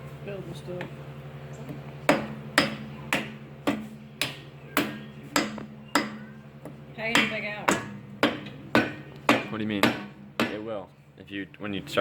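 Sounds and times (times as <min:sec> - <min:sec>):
hammer knocking on metal: 0:02.1 - 0:10.7.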